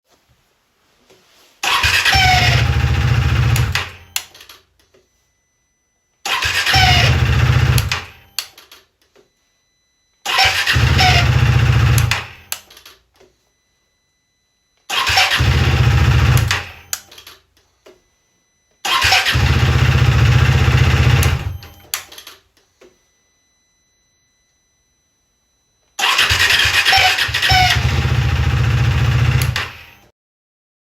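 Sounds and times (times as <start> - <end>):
motorcycle engine starting: 1.6 - 4.0, 6.3 - 8.2, 10.3 - 12.4, 14.9 - 16.9, 18.9 - 21.8, 26.0 - 30.0.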